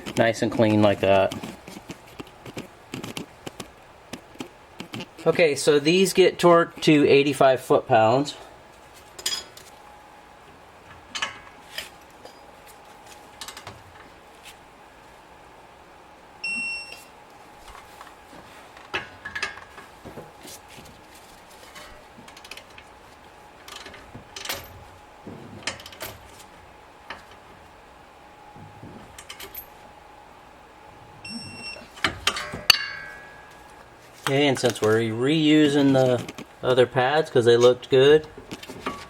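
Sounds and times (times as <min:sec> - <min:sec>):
torque wrench beeps: 0:16.4 - 0:17.1, 0:31.2 - 0:31.8
loud metal clanks: 0:32.2 - 0:33.6.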